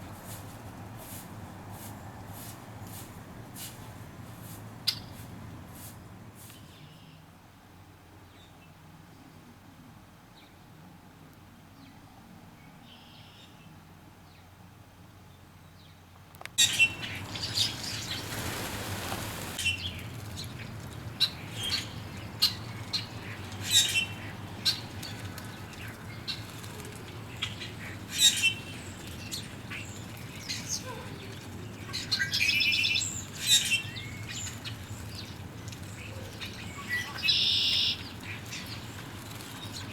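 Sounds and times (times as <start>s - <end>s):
bird wingbeats: 16.8s - 21.2s.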